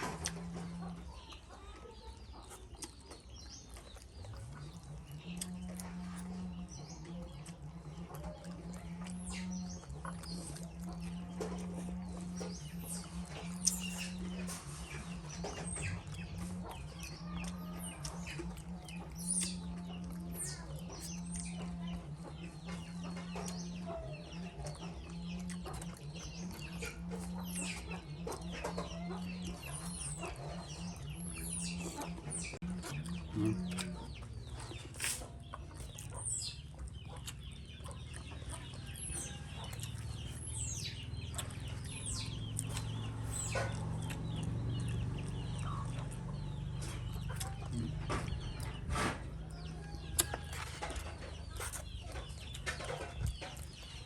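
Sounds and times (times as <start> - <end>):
animal chirps and squeaks: 12.2 - 54.0.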